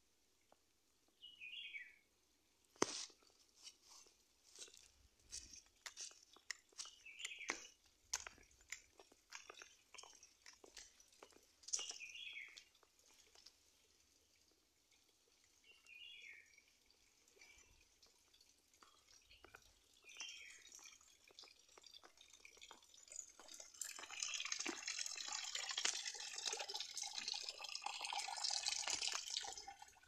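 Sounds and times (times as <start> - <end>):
crunching clicks: 5.3 - 12.0.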